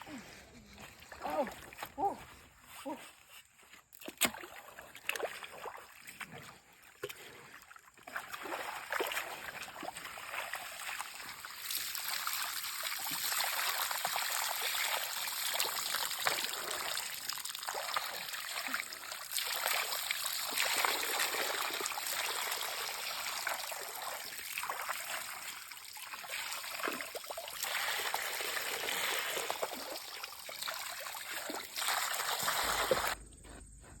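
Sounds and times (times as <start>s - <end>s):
water trickling and splashing: 4.0s - 33.2s.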